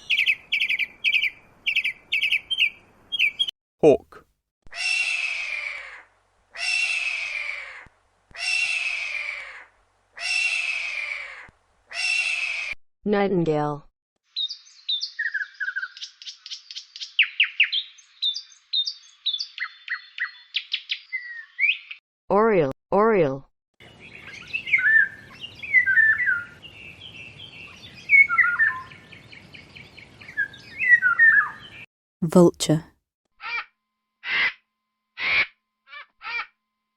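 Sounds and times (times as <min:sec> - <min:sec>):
oriole whistling song: 0:28.0 - 0:29.0, 0:30.3 - 0:31.6.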